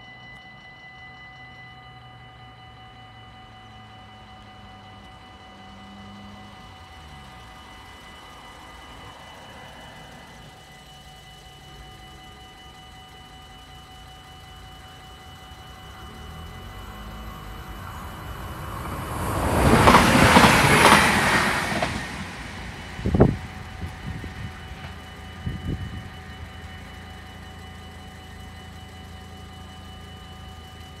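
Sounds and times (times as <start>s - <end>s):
crossing warning bells ringing: 0.0s - 31.0s
train rushing past: 3.6s - 28.8s.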